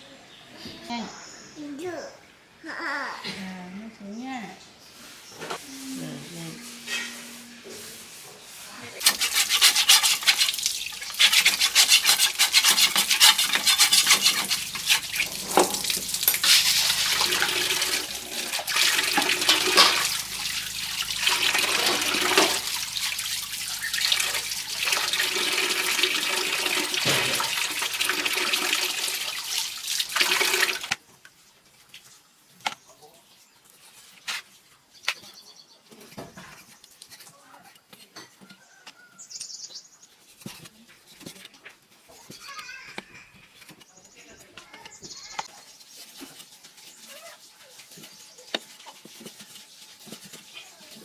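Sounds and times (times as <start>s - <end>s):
water running and splashing: 8.1s - 31.0s.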